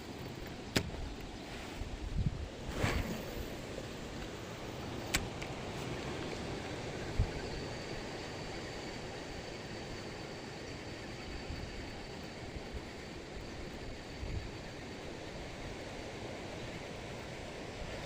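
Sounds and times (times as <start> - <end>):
water noise: 0.0 - 14.9
wind: 0.0 - 18.0
sharp click: 0.4 - 1.3.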